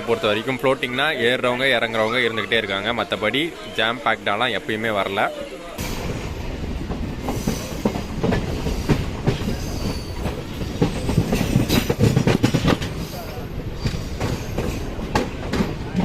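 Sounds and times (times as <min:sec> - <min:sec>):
train wheels rumbling on track: 0:05.8 - 0:16.0.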